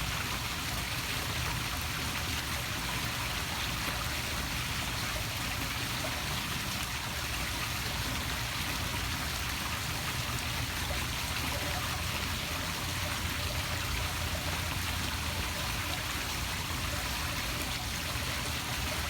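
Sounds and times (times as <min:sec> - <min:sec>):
waterfall splashing into pool: 0:00.0 - 0:19.0.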